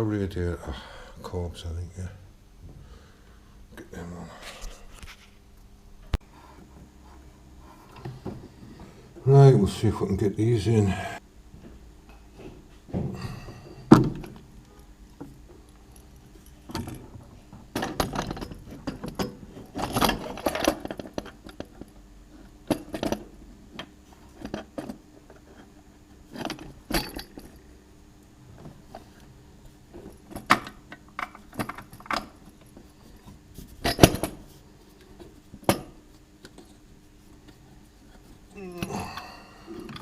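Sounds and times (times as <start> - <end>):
metal parts clinking and rattling: 17.7 - 22.0, 22.6 - 23.4, 26.3 - 27.6, 30.0 - 34.4.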